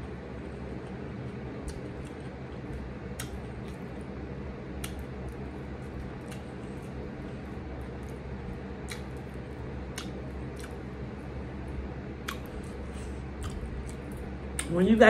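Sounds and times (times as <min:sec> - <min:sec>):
low background hum: 0:00.0 - 0:15.0
wet mouth clicks chewing: 0:03.2 - 0:03.8, 0:08.8 - 0:09.2, 0:09.9 - 0:10.8, 0:12.2 - 0:12.8, 0:13.4 - 0:14.7.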